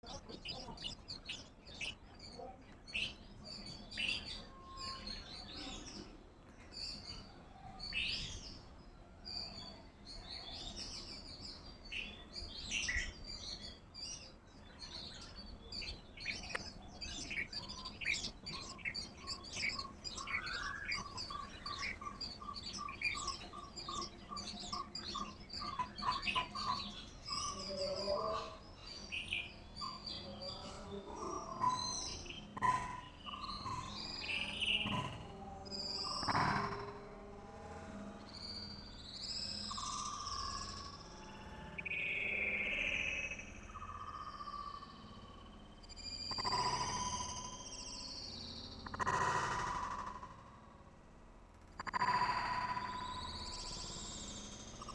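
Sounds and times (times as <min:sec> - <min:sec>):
birds chirping and calling: 0:00.0 - 0:37.3, 0:38.3 - 0:50.5, 0:51.8 - 0:54.9
repeated lower bird notes: 0:11.2 - 0:37.4, 0:38.2 - 0:51.0, 0:51.7 - 0:54.9.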